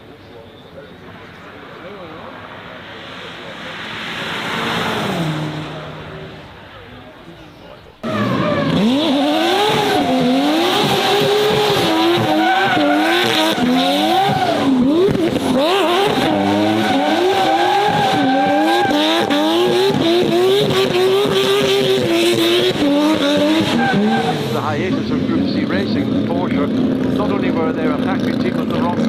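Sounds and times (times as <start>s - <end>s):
race car engine revving: 1.1s - 7.1s, 8.0s - 29.0s
tyres squealing: 7.5s - 25.1s.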